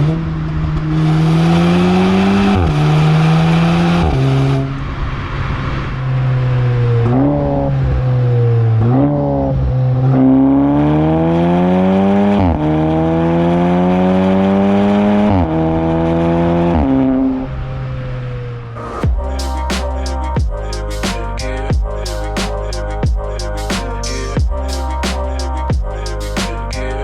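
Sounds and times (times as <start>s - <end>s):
car engine revving and accelerating: 0.0s - 19.4s.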